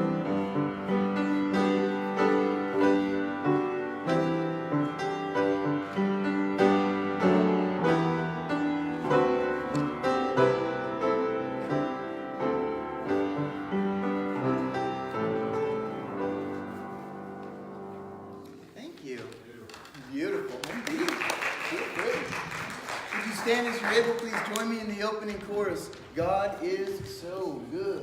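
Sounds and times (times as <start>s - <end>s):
slow solo piano: 0.0s - 18.8s.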